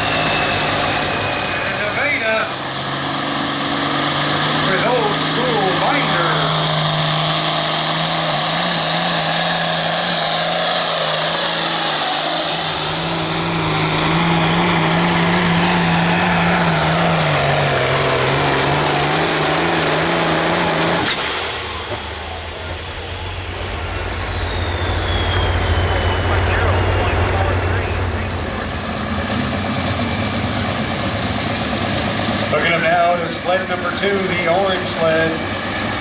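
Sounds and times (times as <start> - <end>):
tractor engine revving under load: 0.0 - 36.0
high falling whistle: 20.1 - 32.0.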